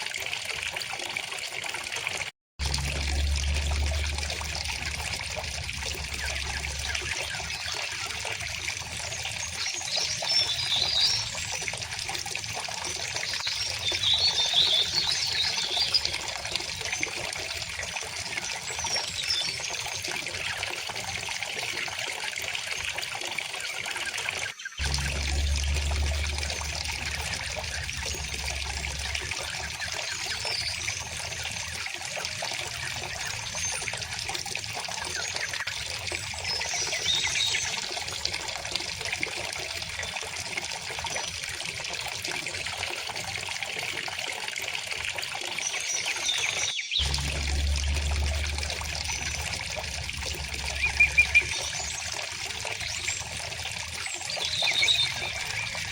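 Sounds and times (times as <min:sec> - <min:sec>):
low rumble: 0:02.6 - 0:07.4, 0:24.8 - 0:29.9, 0:47.0 - 0:52.1
river water flowing: 0:24.8 - 0:39.6, 0:44.0 - 0:55.9
faint bird chirps: 0:50.5 - 0:53.2.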